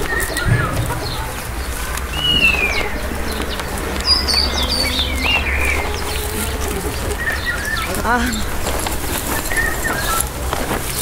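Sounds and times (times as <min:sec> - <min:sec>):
faint high bird chirps: 0:00.0 - 0:08.7
bird whistled call gliding downward: 0:00.0 - 0:10.4
low steady rumble: 0:00.0 - 0:11.0.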